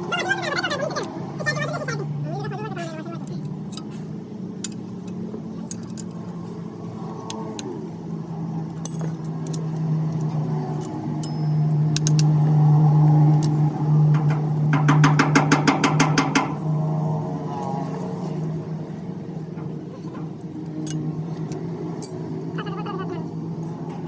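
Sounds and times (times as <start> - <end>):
steady motor hum: 0.0 - 24.0
metallic clicks: 8.7 - 12.4.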